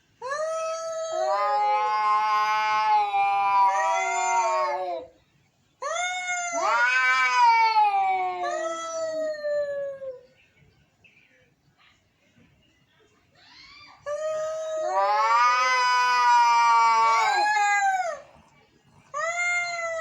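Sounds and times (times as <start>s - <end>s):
cats yowling: 0.2s - 5.1s, 5.8s - 10.2s, 13.5s - 18.4s.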